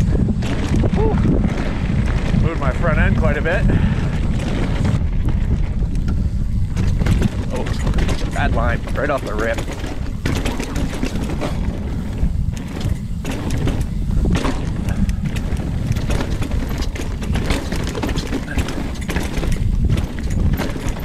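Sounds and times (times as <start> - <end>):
bike rattling over roots: 0.0 - 21.0
wind and ground rumble: 0.0 - 21.0.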